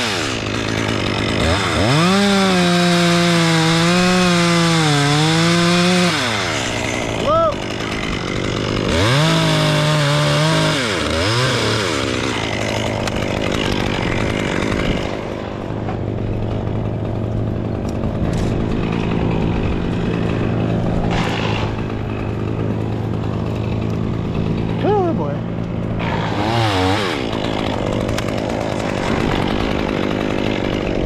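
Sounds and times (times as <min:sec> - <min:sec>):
chainsaw revving and idling: 0:00.0 - 0:31.0.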